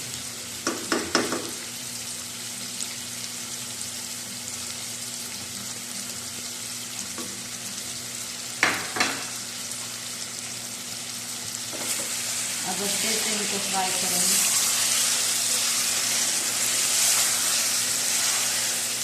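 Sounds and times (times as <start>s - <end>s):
chicken sizzling in hot oil: 0.0s - 19.0s
spoon knocking against pan: 0.6s - 1.6s, 8.6s - 9.3s.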